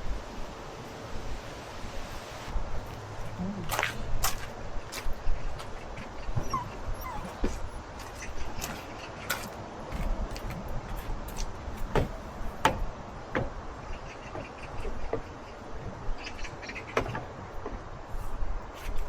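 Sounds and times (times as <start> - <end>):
steady background hiss: 0.0 - 19.0
dog whimpering: 6.2 - 7.9
sharp clicks and knocks: 11.3 - 13.6.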